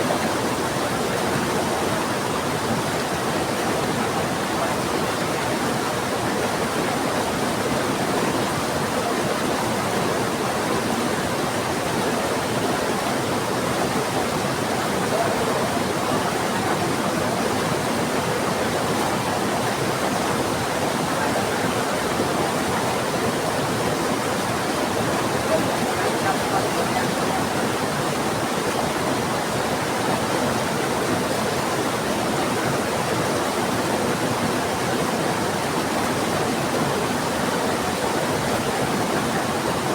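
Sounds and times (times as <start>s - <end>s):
fast-flowing river rushing: 0.0s - 39.9s
heavy rain falling: 12.6s - 39.9s.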